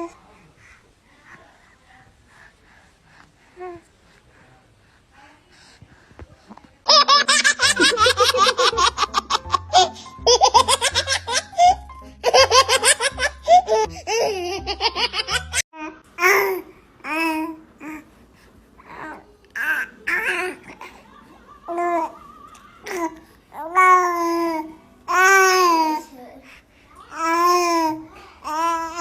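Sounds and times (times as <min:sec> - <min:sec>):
baby giggling: 0:06.9 - 0:15.6
baby cooing and babbling: 0:22.8 - 0:29.0.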